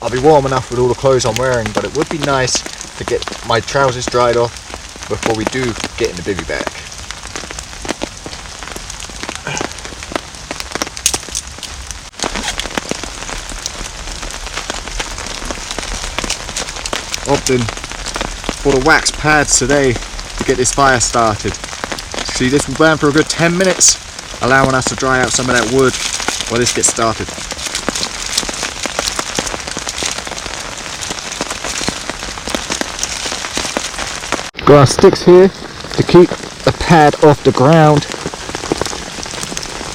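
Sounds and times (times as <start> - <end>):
raindrops striking close by: 0.0 - 39.9
steady hiss of rainfall: 0.0 - 39.9.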